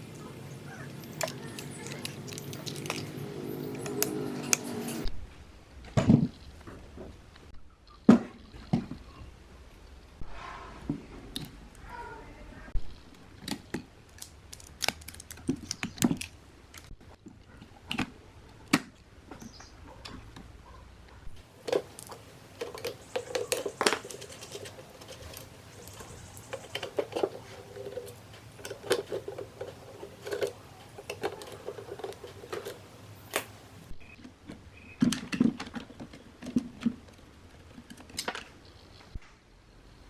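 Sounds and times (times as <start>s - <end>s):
clicks and taps on small parts: 0.8s - 5.0s.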